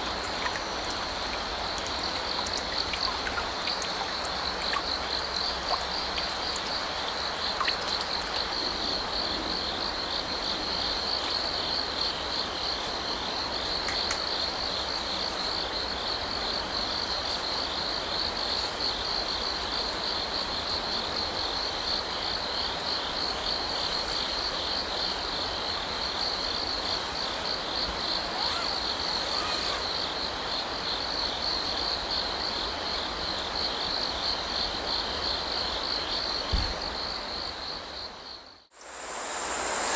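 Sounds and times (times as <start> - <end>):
stream rushing: 0.0 - 9.1
crickets chirping: 0.0 - 39.9.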